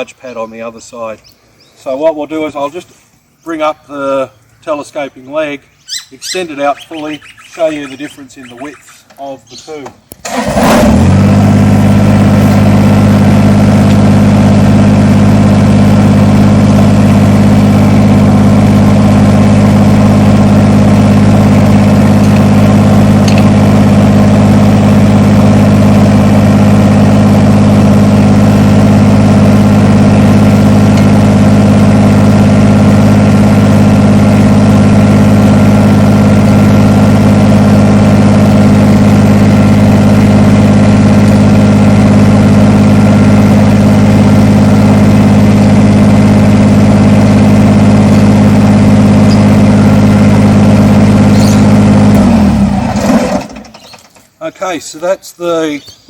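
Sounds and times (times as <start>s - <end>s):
tractor diesel engine idling: 11.2s - 54.8s.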